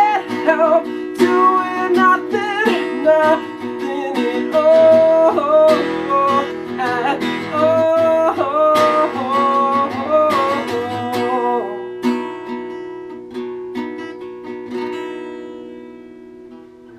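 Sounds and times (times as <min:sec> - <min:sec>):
person singing wordlessly: 0:00.0 - 0:12.0
acoustic guitar chords: 0:00.0 - 0:16.9.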